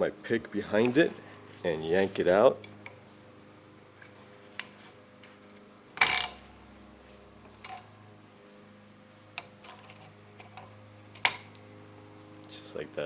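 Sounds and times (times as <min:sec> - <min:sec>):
faint steady hum: 0:00.0 - 0:13.0
metal pick clicking and scraping: 0:04.0 - 0:06.6, 0:07.5 - 0:07.9, 0:09.4 - 0:11.6.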